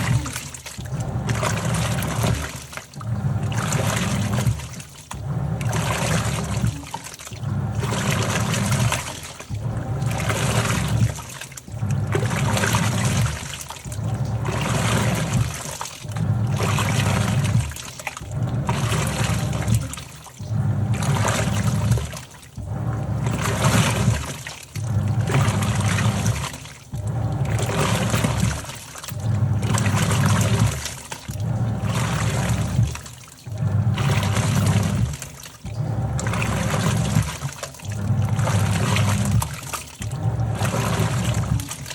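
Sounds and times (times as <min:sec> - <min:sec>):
washing machine agitating: 0:00.0 - 0:41.9.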